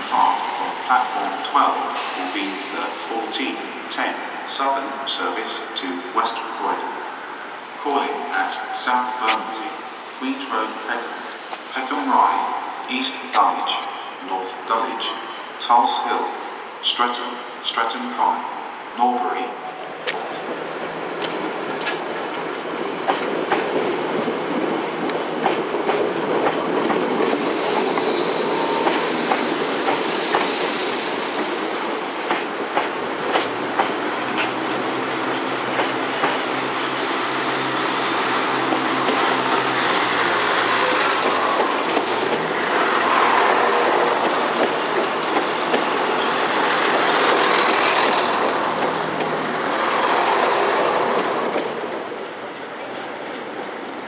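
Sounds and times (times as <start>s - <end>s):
train wheels clicking over rail joints: 21.2s - 52.0s
faint high wheel squeal: 27.5s - 29.2s.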